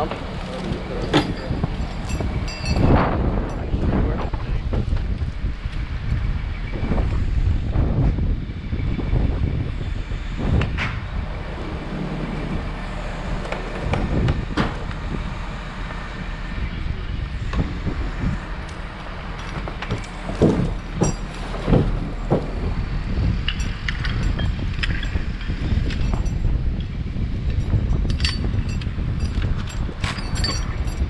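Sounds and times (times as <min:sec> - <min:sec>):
knocks and clanks: 0:00.0 - 0:05.2, 0:10.5 - 0:16.4, 0:17.4 - 0:26.9, 0:27.5 - 0:31.0
large engine running: 0:00.0 - 0:31.0.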